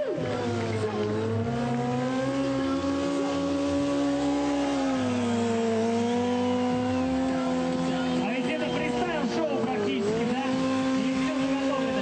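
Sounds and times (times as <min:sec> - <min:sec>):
motorcycle engine revving high: 0:00.0 - 0:12.0.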